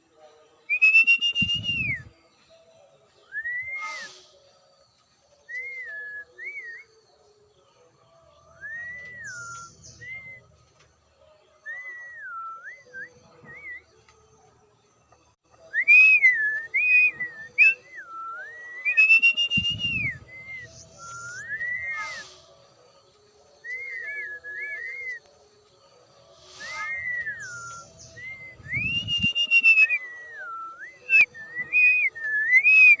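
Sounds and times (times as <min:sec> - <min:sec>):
bird whistling: 0:00.7 - 0:02.1, 0:03.3 - 0:04.4, 0:05.5 - 0:07.0, 0:08.6 - 0:10.6, 0:15.7 - 0:22.5, 0:23.6 - 0:25.3, 0:26.4 - 0:33.0.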